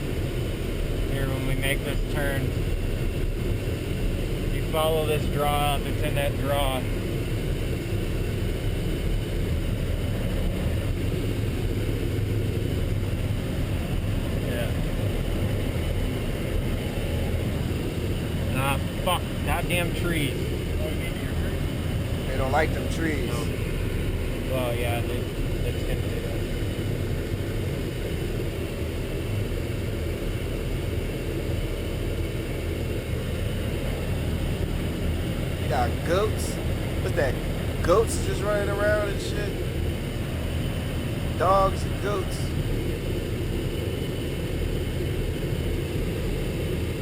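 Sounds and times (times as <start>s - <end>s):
truck engine and road rumble: 0.0s - 47.0s
truck engine rumbling: 16.4s - 24.5s, 33.5s - 42.8s.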